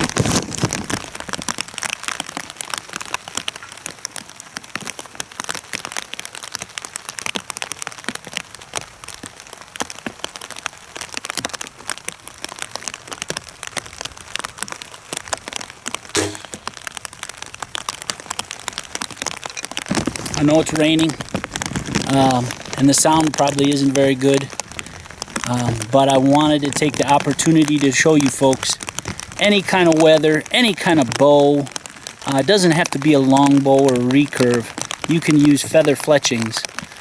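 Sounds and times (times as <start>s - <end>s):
heavy rain pattering: 0.0s - 37.0s.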